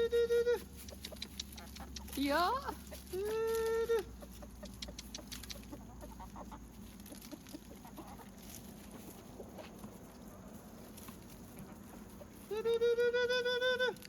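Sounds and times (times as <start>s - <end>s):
chickens clucking: 0.0s - 14.0s
faint clicks: 0.8s - 2.2s, 4.6s - 5.8s.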